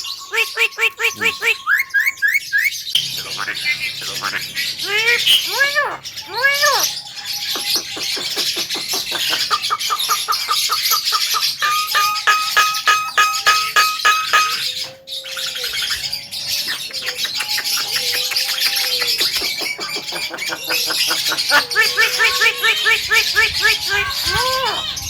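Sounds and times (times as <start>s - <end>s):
constant high chirping: 0.0s - 25.0s
rattle of clicking notes: 11.3s - 15.0s.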